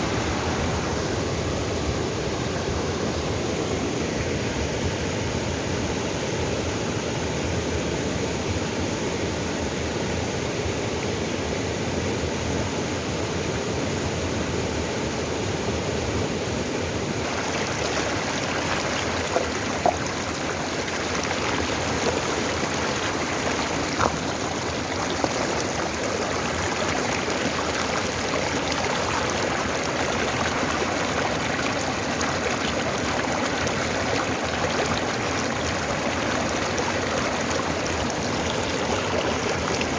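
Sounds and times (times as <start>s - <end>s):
stream rushing over rocks: 0.0s - 4.6s, 16.4s - 39.9s.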